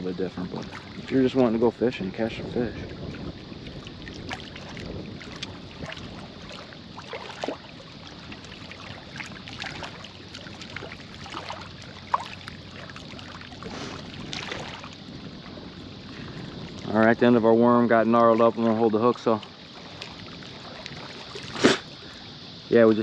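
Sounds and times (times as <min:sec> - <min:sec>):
small splashes and clicks: 0:03.6 - 0:15.0, 0:18.4 - 0:21.9.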